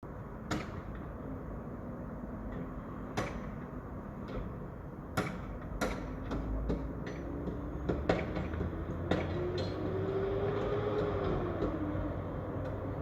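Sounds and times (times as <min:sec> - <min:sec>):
loud sharp knocks: 0:03.1 - 0:03.6, 0:05.1 - 0:09.9.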